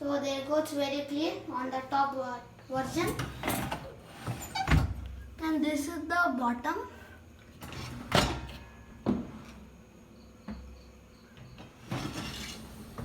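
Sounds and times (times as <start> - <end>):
dishwasher rack sliding on rollers: 2.8 - 4.9, 7.6 - 8.6, 11.8 - 13.0.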